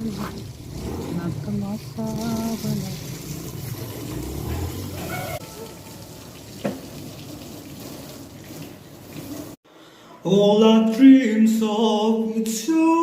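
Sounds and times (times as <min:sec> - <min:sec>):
water running and splashing: 0:00.0 - 0:09.6.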